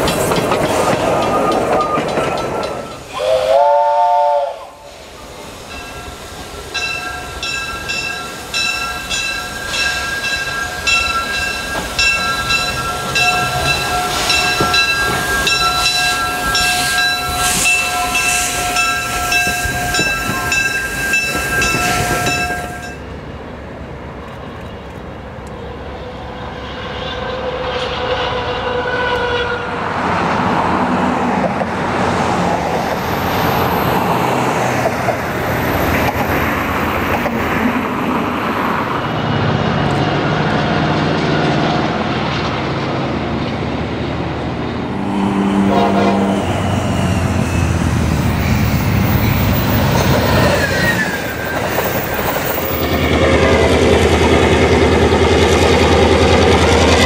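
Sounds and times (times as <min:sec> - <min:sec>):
train wheels clattering: 0:00.0 - 0:03.2, 0:05.6 - 0:23.0, 0:46.4 - 0:57.0
train horn: 0:03.1 - 0:04.9, 0:13.2 - 0:20.6, 0:21.3 - 0:23.0, 0:26.2 - 0:29.9, 0:45.0 - 0:47.9.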